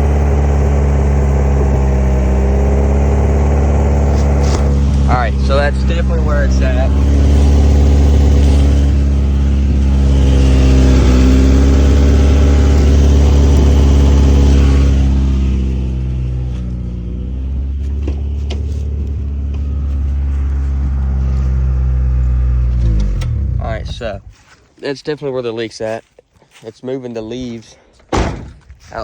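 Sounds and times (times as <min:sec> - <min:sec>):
exhaust leak hissing: 0:00.0 - 0:24.3
car engine running: 0:00.0 - 0:24.6.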